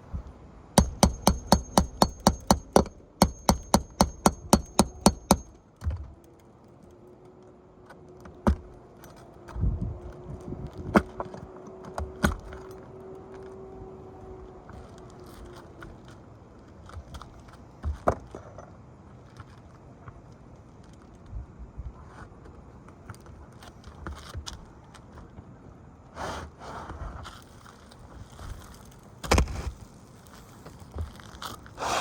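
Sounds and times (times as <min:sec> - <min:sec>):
scattered knocks: 0:00.8 - 0:05.5
nails being hammered: 0:00.8 - 0:05.6.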